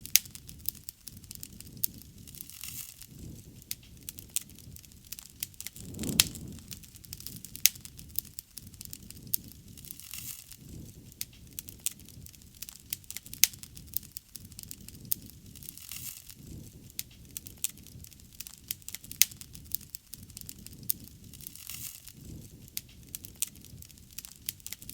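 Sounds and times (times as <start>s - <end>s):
wood fire crackling and popping: 0.1s - 24.9s
low rumble: 5.8s - 7.0s.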